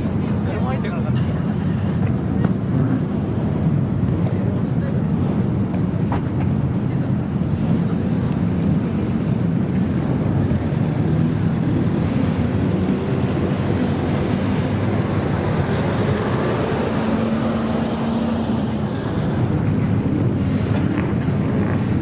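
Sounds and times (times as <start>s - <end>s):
car engine running loudly: 0.0s - 22.0s.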